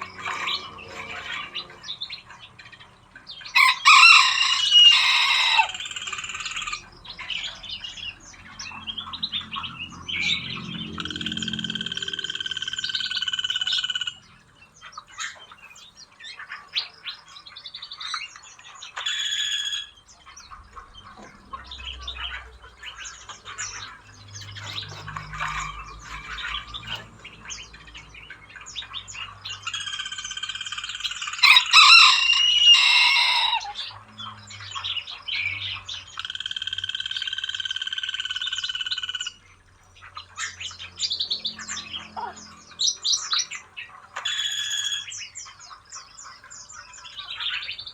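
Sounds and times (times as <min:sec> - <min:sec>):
small birds chirping: 0:00.0 - 0:47.9
high-pitched buzzing bird call: 0:03.6 - 0:06.8, 0:29.7 - 0:33.8.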